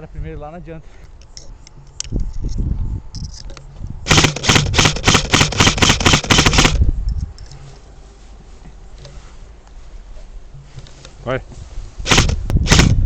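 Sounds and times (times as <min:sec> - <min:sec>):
airsoft rifle rapid fire: 0:04.1 - 0:06.8, 0:12.0 - 0:13.0.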